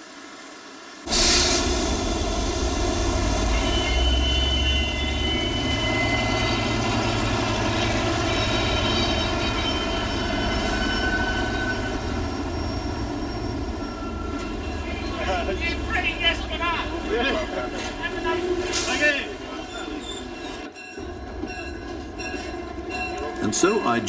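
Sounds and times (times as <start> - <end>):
diesel train engine drone: 0.0 - 24.0
train running gear rumble: 1.1 - 24.0
high squealing tones: 2.2 - 20.7.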